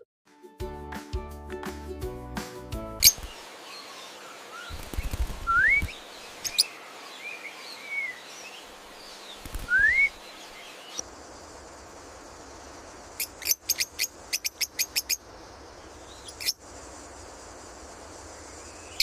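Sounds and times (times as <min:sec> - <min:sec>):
music: 0:00.0 - 0:03.3
outdoor hiss: 0:01.7 - 0:19.0
birds chirping: 0:03.0 - 0:19.0.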